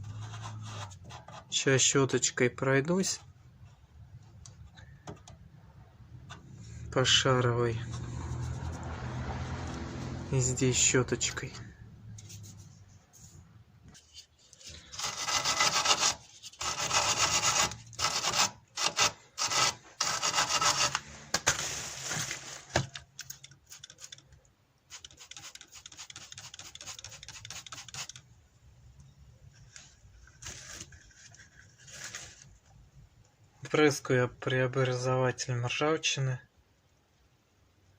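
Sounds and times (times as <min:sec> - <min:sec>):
hand brush scrubbing metal: 0:14.1 - 0:21.3, 0:24.9 - 0:28.2.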